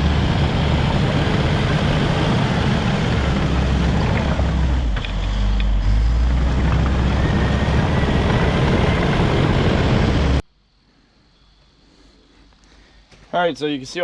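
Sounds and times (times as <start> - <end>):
bulldozer diesel engine rumbling: 0.0 - 10.4.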